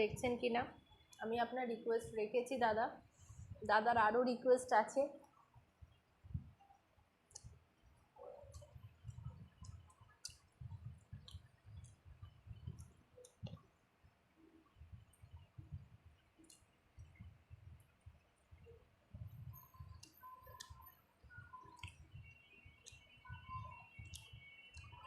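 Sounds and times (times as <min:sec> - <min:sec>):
lip smacks and mouth clicks: 0:07.3 - 0:07.5, 0:08.4 - 0:13.7, 0:16.4 - 0:18.0, 0:19.8 - 0:22.1, 0:24.0 - 0:24.9.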